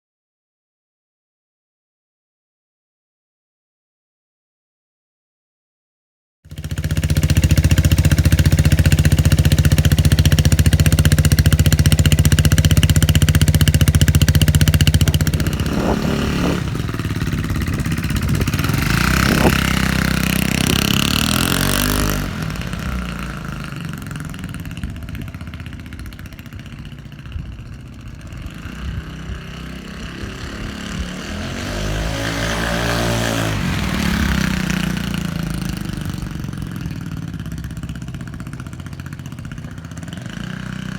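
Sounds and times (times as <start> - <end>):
scooter engine revving: 6.5 - 40.9.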